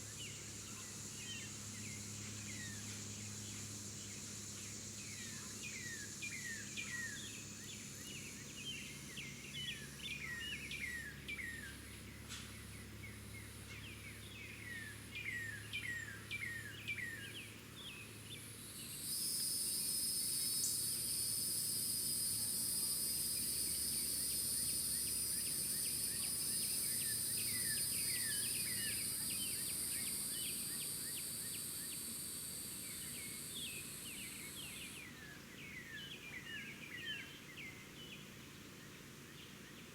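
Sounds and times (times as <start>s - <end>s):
high-pitched insect drone: 19.0s - 34.7s.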